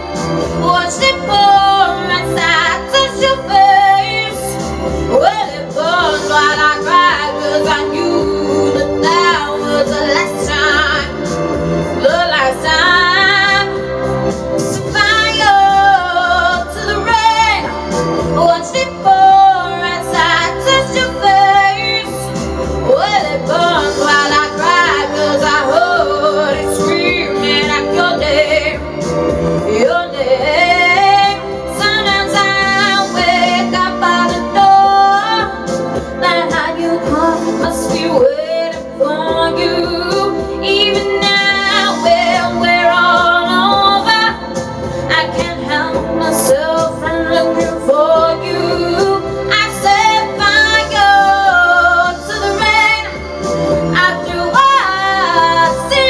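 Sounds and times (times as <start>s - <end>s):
woman singing: 0.0s - 29.0s, 29.6s - 56.0s
backing music: 0.0s - 56.0s.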